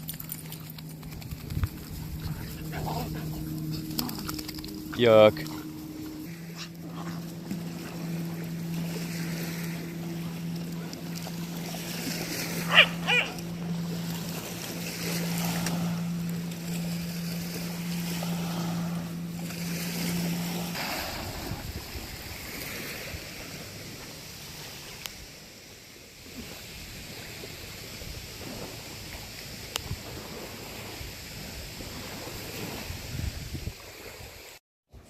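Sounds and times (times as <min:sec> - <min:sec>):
low motor hum: 0:00.0 - 0:32.8
water noise: 0:00.0 - 0:35.0
wind: 0:00.0 - 0:35.0
short high yips: 0:12.6 - 0:13.5.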